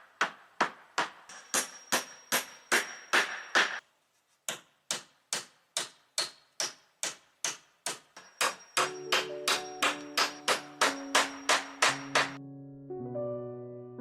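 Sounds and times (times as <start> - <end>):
sharp knocks: 0.0 - 3.8, 4.5 - 12.4.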